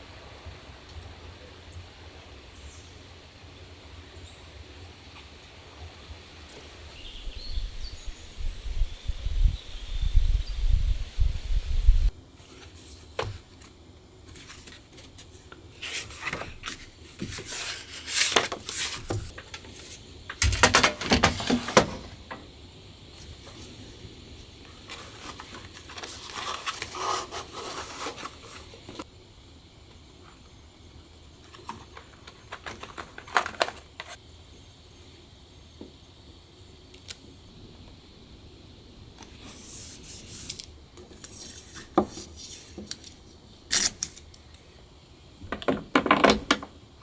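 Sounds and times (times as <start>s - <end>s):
objects rubbing and scraping: 14.4s - 22.4s.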